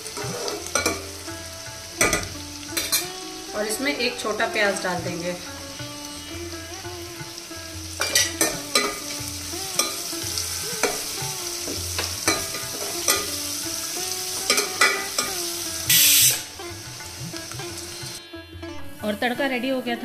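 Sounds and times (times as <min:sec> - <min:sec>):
food sizzling in hot oil: 0:00.0 - 0:18.2
loud hiss: 0:09.2 - 0:17.0.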